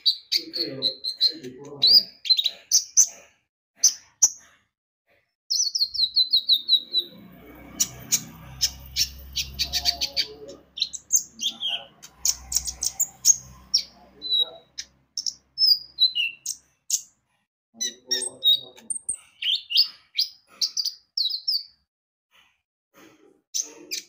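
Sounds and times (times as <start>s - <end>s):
sunbird singing: 0.0s - 3.1s, 5.5s - 17.1s, 17.8s - 21.7s.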